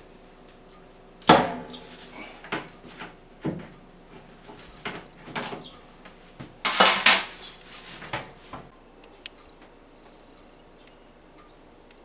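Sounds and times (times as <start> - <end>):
metal fan parts clattering: 0.0 - 8.7.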